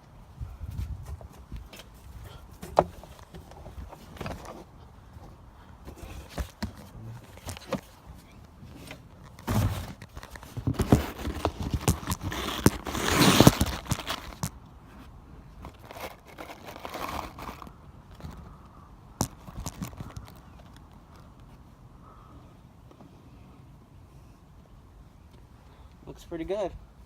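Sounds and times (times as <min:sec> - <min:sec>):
clatter and rustling: 0:01.0 - 0:14.6, 0:15.6 - 0:18.5, 0:19.2 - 0:21.3
handling knocks and clicks: 0:05.9 - 0:14.5.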